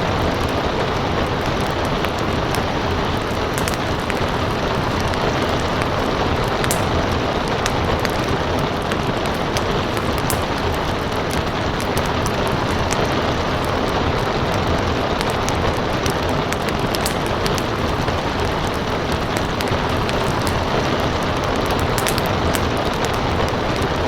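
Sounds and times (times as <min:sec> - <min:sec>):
steady rain: 0:00.0 - 0:24.0
wood fire crackling: 0:00.0 - 0:24.0.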